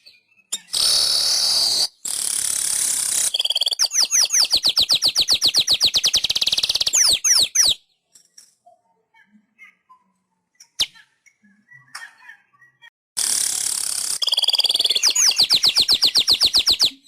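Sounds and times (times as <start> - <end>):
bird fast trill: 0.0 - 7.9, 13.2 - 17.0
bird chips and falling notes: 14.1 - 17.0.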